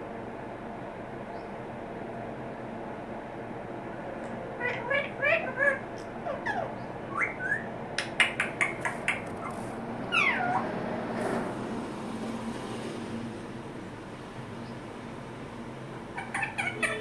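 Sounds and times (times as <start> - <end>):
parrot calls: 4.6 - 10.7, 16.1 - 17.0
parrot sharp clicks: 8.0 - 9.4.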